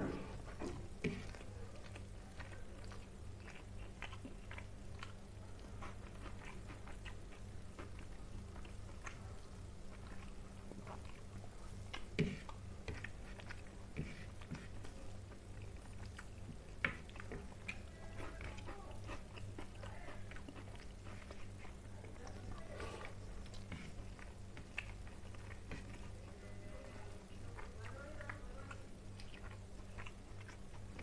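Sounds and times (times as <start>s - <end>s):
fingers mixing rice on a plate: 0.0s - 31.0s
steady low hum: 0.0s - 31.0s
chewing and wet mouth noises: 0.1s - 31.0s.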